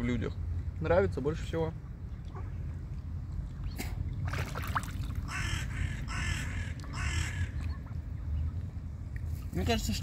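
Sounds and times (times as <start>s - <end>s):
bird harsh calls: 5.2s - 7.8s.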